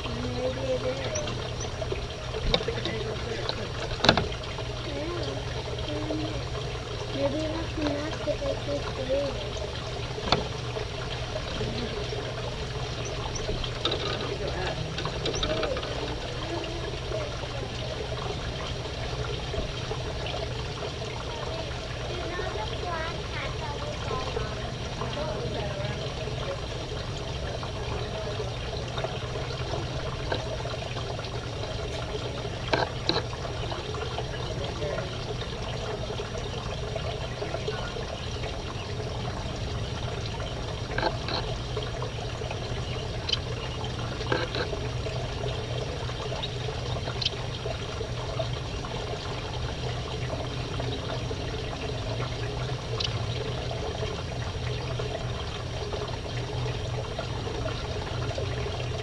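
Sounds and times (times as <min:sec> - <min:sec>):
water-like rushing noise: 0:00.0 - 0:59.0
finches chirping: 0:42.6 - 0:44.4.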